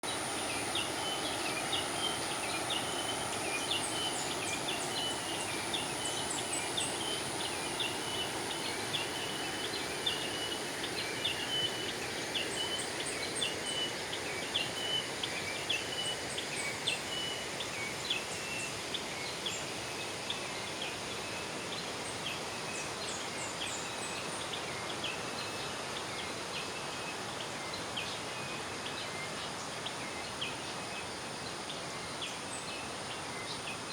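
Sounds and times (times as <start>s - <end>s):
small birds chirping: 0.0s - 19.7s
river water flowing: 0.0s - 33.9s.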